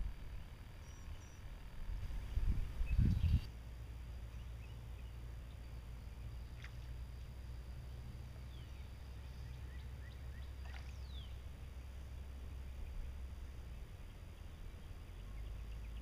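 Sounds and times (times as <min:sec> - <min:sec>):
steady low rumble: 0:00.0 - 0:16.0
faint bird chirps: 0:00.2 - 0:01.5, 0:02.3 - 0:03.6, 0:08.4 - 0:16.0.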